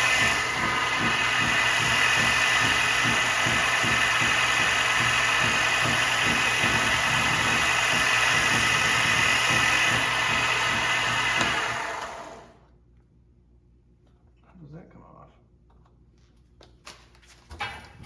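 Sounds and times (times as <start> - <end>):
belt sander running: 0.0 - 12.6.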